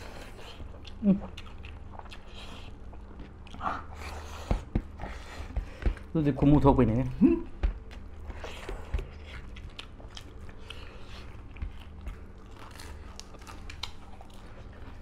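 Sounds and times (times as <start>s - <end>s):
crisp chewing crunches: 8.4s - 15.0s.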